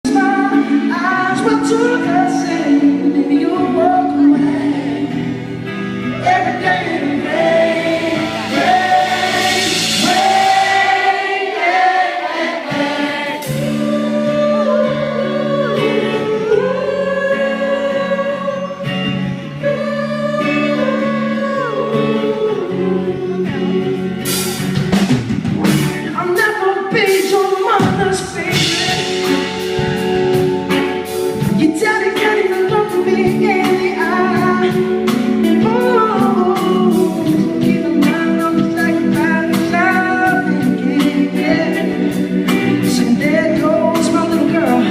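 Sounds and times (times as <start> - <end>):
wordless vocal harmonies: 0.0 - 25.2, 26.0 - 44.9
band playing: 0.0 - 44.9.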